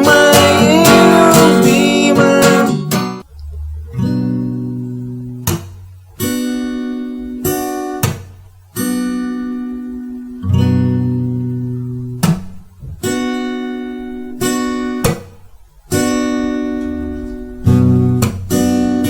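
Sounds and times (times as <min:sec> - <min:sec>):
person singing: 0:00.0 - 0:03.2
acoustic guitar strumming: 0:00.0 - 0:19.0.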